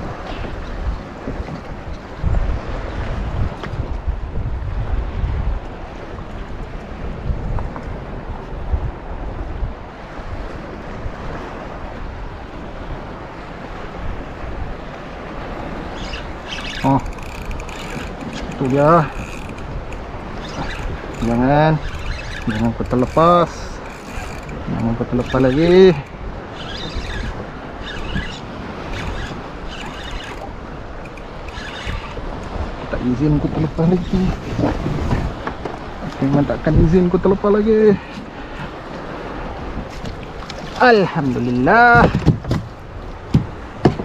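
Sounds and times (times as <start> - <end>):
wind buffeting microphone: 0.0 - 44.0
fishing reel whirring rattle: 16.0 - 32.3.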